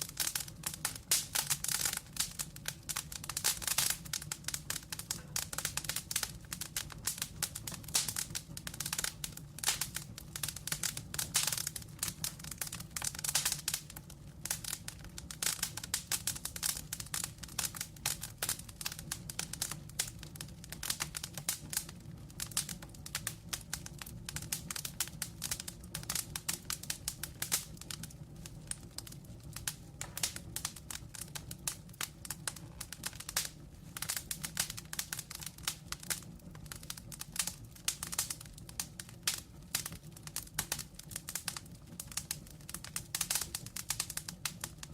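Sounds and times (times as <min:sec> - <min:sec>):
logs crackling and popping: 0:00.0 - 0:44.9
low rumble of flame: 0:00.0 - 0:44.9.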